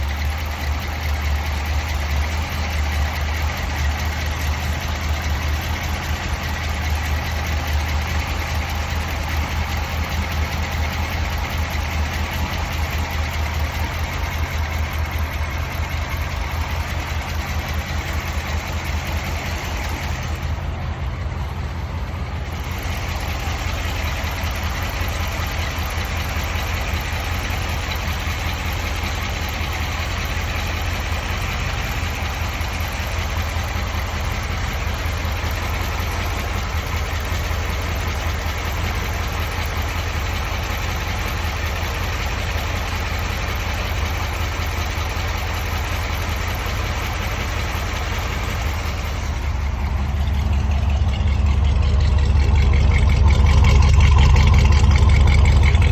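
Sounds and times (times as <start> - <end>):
car engine idling: 0.0 - 55.9.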